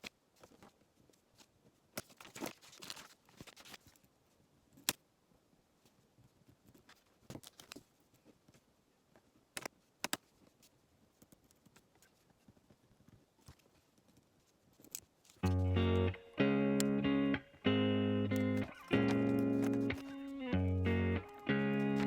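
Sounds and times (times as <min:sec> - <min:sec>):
rustling: 0:00.0 - 0:04.4, 0:09.8 - 0:16.1, 0:18.6 - 0:22.0.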